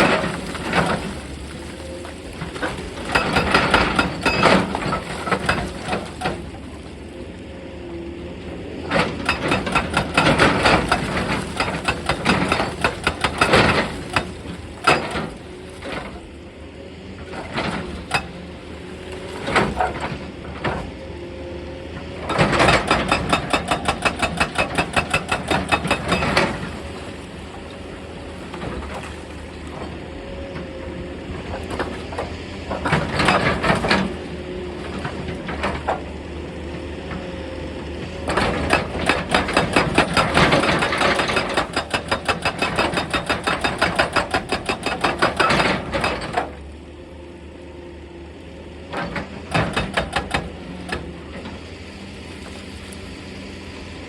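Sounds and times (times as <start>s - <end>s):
excavator engine running: 0.0s - 28.9s, 29.6s - 54.0s
hydraulic breaker hammering rock: 2.5s - 6.5s, 8.9s - 16.2s, 22.2s - 26.9s, 31.6s - 34.1s, 38.2s - 46.6s, 49.0s - 51.2s.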